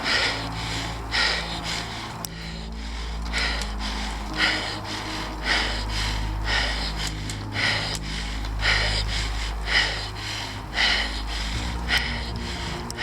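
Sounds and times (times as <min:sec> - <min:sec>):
cyclist breathing hard: 0:00.0 - 0:13.0
steady low hum: 0:00.0 - 0:13.0.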